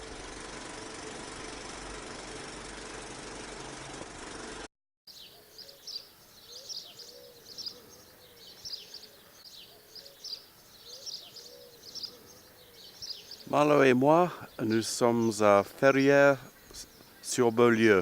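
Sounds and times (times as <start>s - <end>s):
low softly arched bird call: 5.1s - 15.6s
small birds chirping: 5.1s - 18.0s.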